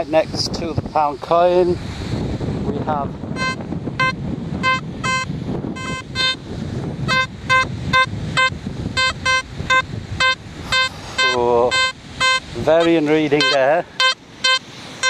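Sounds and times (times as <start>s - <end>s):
wind on microphone: 0.0s - 15.0s
metal detector beeps: 3.4s - 6.4s, 7.1s - 15.0s.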